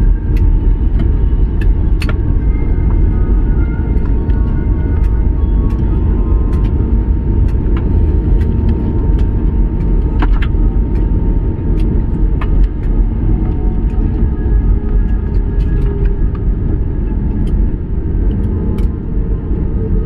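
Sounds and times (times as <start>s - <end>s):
airliner cabin rumble: 0.0s - 20.0s
faint clicks and rattles: 0.0s - 20.0s.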